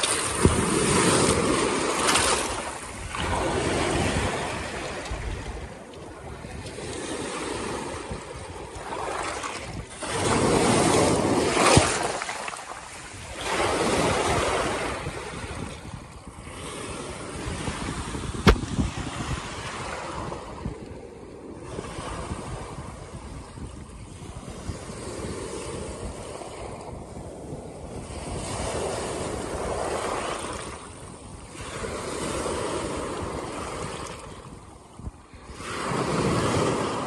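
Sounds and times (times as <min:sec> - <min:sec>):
waves breaking over rocks: 0:00.0 - 0:20.7, 0:31.5 - 0:37.0
sharp click: 0:18.4 - 0:18.8.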